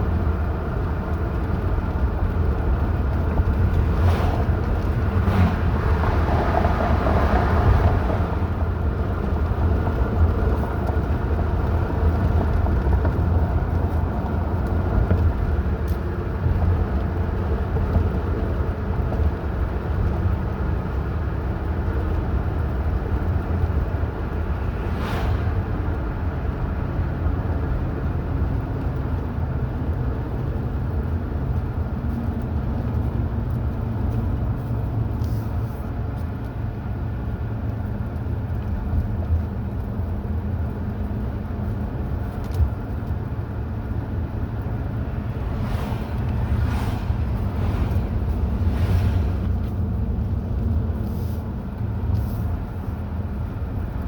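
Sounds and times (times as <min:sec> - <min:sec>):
car driving road noise: 0:00.0 - 0:54.0
brief rushing swells: 0:24.6 - 0:26.0, 0:45.4 - 0:49.6.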